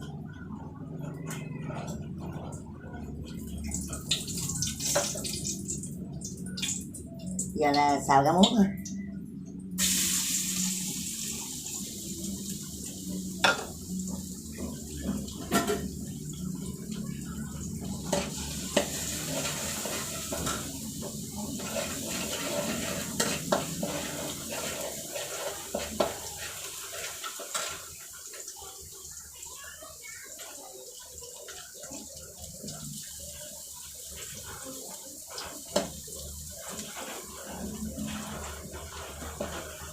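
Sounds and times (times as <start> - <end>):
steady hiss: 9.8 - 13.2.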